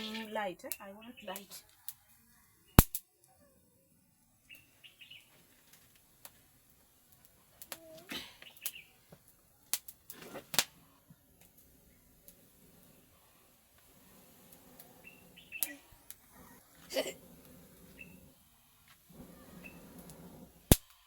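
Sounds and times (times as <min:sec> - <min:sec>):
sharp clicks and pops: 0:02.8 - 0:03.1, 0:20.0 - 0:21.0.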